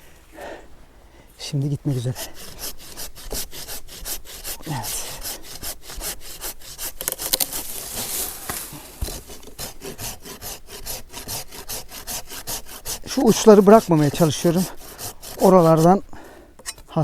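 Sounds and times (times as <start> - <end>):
hand saw cutting branch: 1.8 - 17.0.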